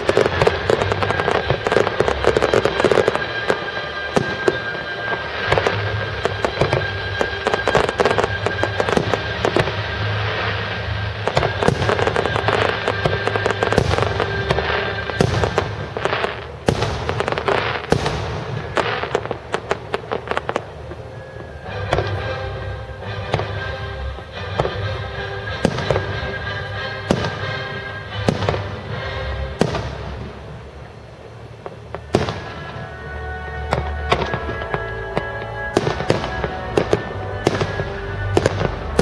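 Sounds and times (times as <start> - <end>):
fireworks bursting: 0.0 - 39.0
music playing: 0.0 - 39.0.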